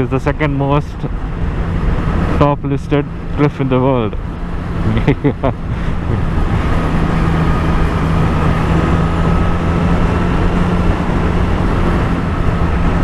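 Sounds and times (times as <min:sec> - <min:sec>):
road noise: 0:00.0 - 0:13.0
rushing wind: 0:00.0 - 0:13.0
motorcycle engine running: 0:04.0 - 0:13.0.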